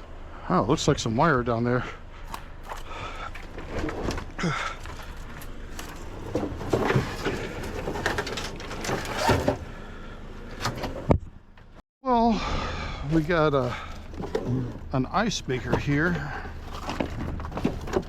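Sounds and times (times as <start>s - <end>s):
scrap metal clanking and rustling: 2.3s - 9.8s, 15.6s - 18.0s.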